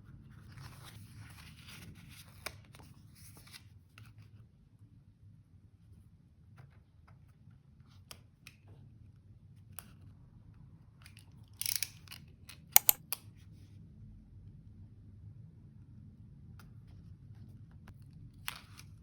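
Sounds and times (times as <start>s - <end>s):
sharp clicks: 12.8s - 13.0s.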